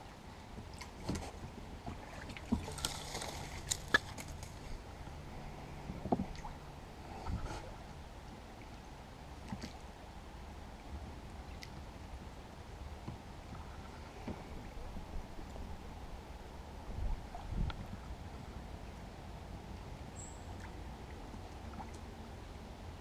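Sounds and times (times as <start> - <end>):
faint water noise: 0.0 - 23.0
oar and hull knocks and creaks: 0.6 - 4.7, 5.8 - 6.5, 13.0 - 14.6.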